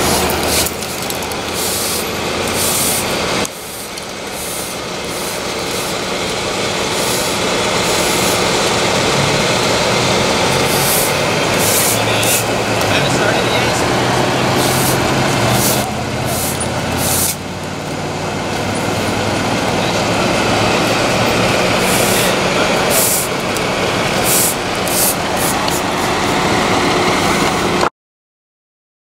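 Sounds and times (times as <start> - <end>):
bursts of hissing: 0.0 - 12.9, 13.9 - 17.4, 20.6 - 26.4
diesel truck engine running: 0.0 - 27.9.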